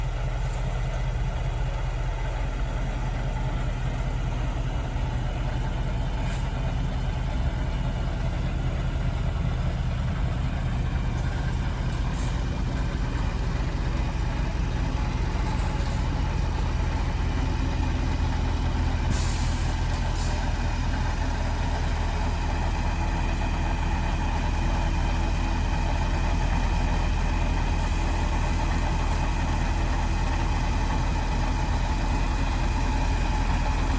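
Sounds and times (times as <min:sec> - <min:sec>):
diesel engine idling: 0:00.0 - 0:33.9
short hiss: 0:19.1 - 0:20.4.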